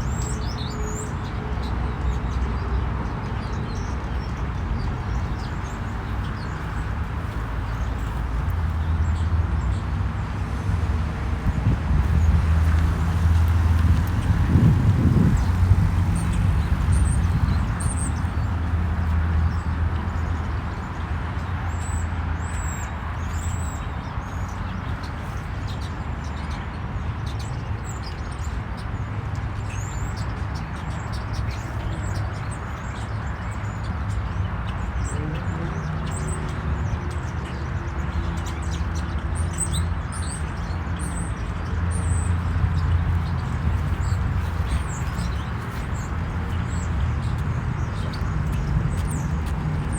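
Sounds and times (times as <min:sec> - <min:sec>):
small birds chirping: 0:02.1 - 0:49.9.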